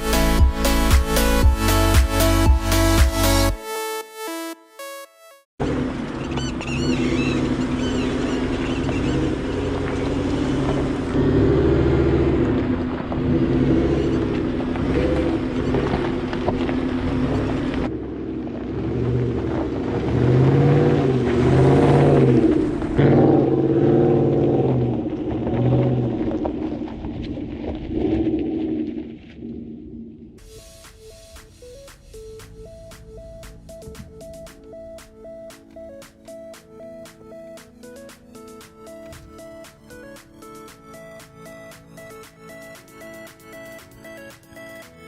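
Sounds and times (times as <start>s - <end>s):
truck engine revving: 5.6s - 27.1s.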